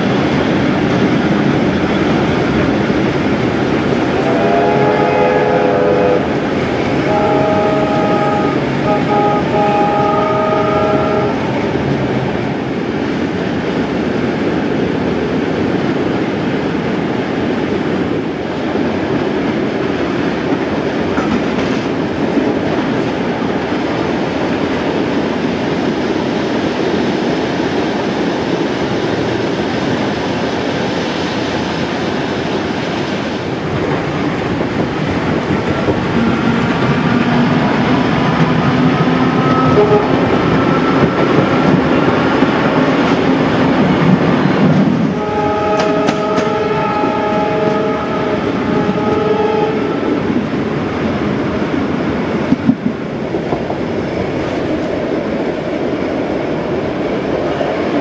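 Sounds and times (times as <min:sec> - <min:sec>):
wheels rumbling on rail: 0:00.0 - 0:58.0
train whistle blast: 0:04.1 - 0:06.3, 0:07.0 - 0:11.4, 0:39.3 - 0:41.1, 0:45.2 - 0:50.2
long steady tone: 0:04.1 - 0:06.4, 0:07.0 - 0:11.6, 0:38.6 - 0:41.9, 0:45.1 - 0:50.2.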